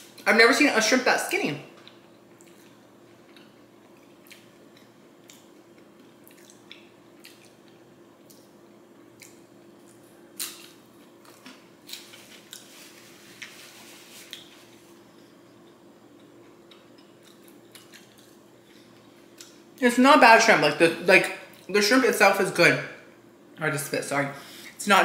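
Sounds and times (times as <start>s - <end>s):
steady low hum: 0.0s - 25.0s
crunchy chewing: 1.8s - 8.5s, 9.1s - 19.6s
paper napkin rustling: 12.0s - 15.0s.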